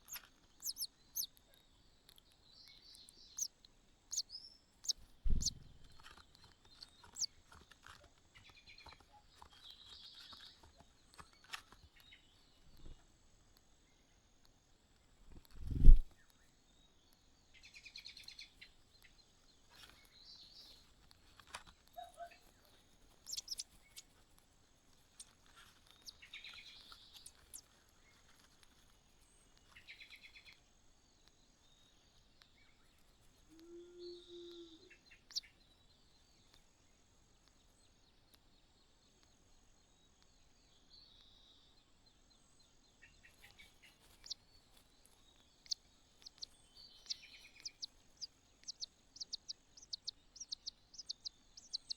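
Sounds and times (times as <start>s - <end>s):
rapid ticking bird notes: 0.0s - 1.4s, 23.2s - 24.2s, 45.4s - 51.9s
faint bird chirps: 0.0s - 13.0s, 13.7s - 24.3s, 24.9s - 51.9s.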